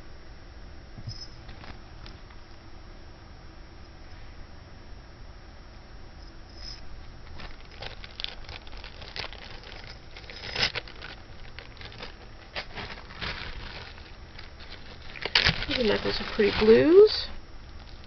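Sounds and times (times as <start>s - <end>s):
plastic bags crinkling: 1.4s - 2.4s, 7.2s - 18.0s.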